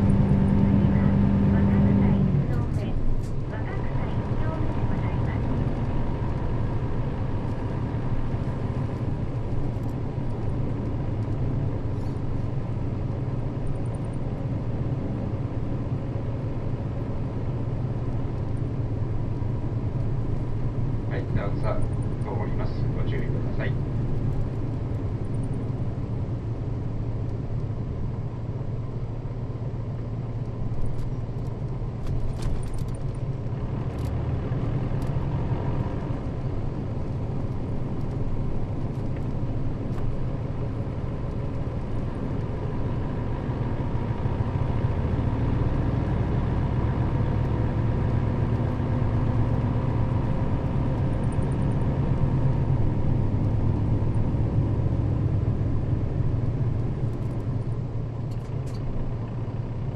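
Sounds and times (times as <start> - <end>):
bus engine drone: 0.0 - 59.9
road noise: 0.0 - 59.9
light rattles: 30.2 - 42.8.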